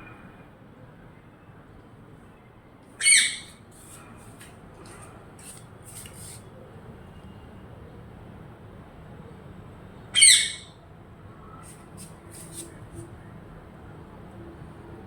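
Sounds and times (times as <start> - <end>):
parrot squawking: 3.0 - 3.6, 10.2 - 10.7.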